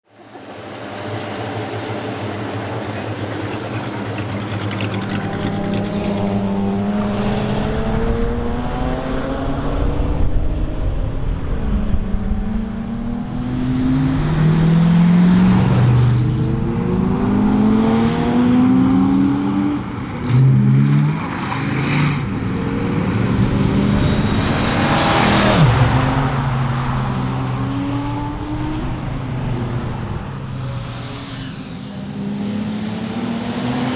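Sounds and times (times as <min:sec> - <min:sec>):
car sweeping past: 0:13.3 - 0:33.9.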